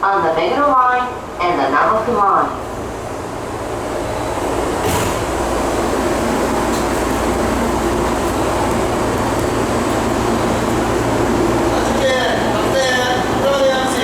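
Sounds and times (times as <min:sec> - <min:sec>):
train rolling rumble: 0:00.0 - 0:14.0.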